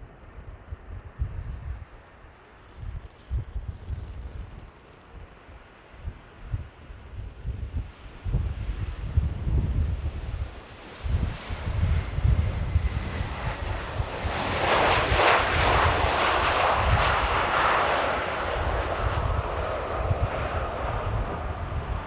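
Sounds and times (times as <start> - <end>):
high fan whine: 0.0 - 22.0
jet engines on approach: 0.0 - 22.0
wind buffeting microphone: 6.0 - 22.0.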